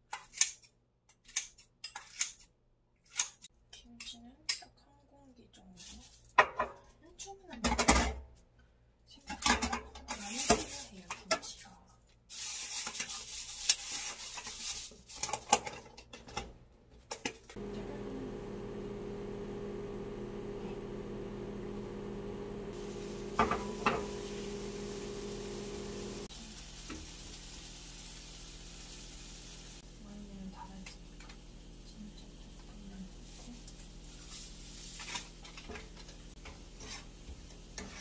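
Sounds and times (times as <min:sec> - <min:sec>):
kimchi sizzling in a frying pan: 0:12.3 - 0:15.5, 0:22.7 - 0:38.0
steady hum: 0:17.6 - 0:26.3
cookware clattering: 0:23.2 - 0:26.0.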